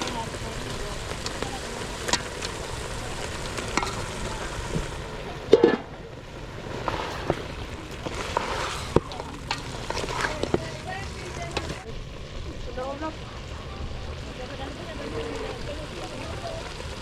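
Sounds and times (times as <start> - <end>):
food sizzling in a pot: 0.0 - 17.0
utensil clattering on pot: 5.5 - 5.9.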